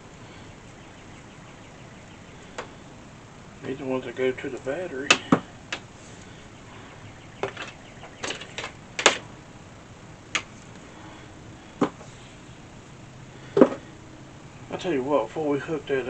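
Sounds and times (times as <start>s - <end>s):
clicks and knocks handling parts: 7.4s - 9.3s, 10.3s - 10.8s.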